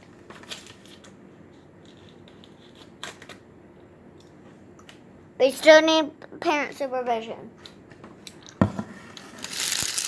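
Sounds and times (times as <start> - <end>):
plastic packaging rustling: 9.2 - 10.0.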